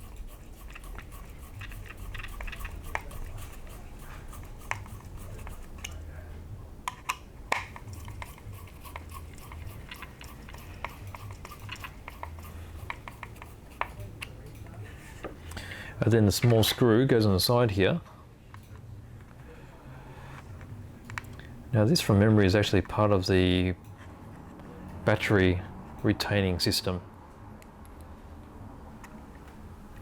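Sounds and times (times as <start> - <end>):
low steady hum: 0.0 - 17.1.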